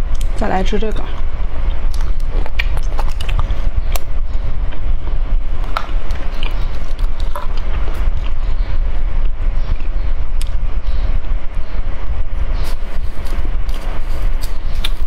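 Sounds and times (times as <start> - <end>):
steady low rumble: 0.0 - 15.0
chewing and crunching candy: 1.7 - 4.1, 5.6 - 8.4.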